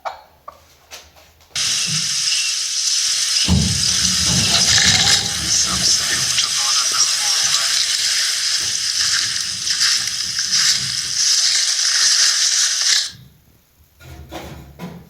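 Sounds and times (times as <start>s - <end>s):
loud steady hissing: 1.6s - 13.2s.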